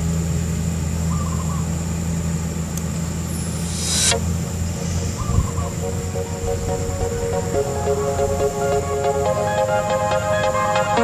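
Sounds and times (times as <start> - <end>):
short hiss: 3.3 - 5.0.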